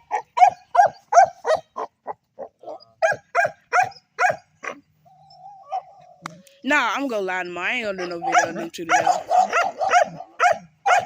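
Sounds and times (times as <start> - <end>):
dog barking: 0.1 - 4.8, 8.0 - 11.0.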